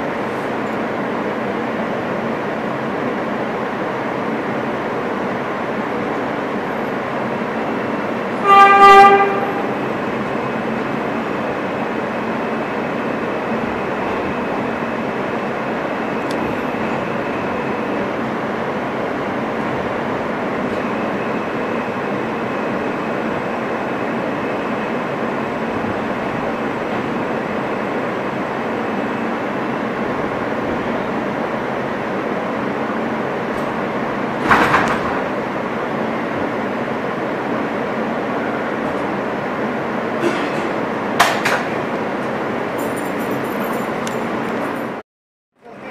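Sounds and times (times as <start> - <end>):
subway car rumble: 0.0 - 45.9
train horn blast: 8.4 - 9.9.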